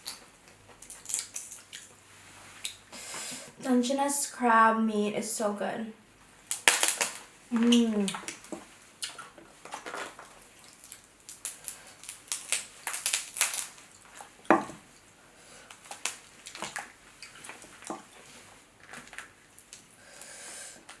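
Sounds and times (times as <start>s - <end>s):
crab shell crackling: 0.0s - 2.0s, 6.4s - 20.3s.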